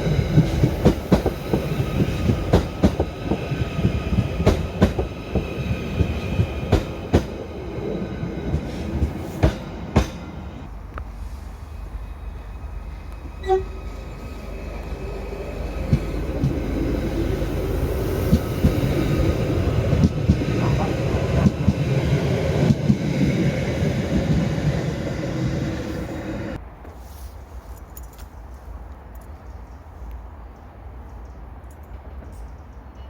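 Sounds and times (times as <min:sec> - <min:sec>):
wheels knocking on track: 0:00.0 - 0:07.4, 0:15.6 - 0:23.1
train passing close by: 0:00.0 - 0:26.9.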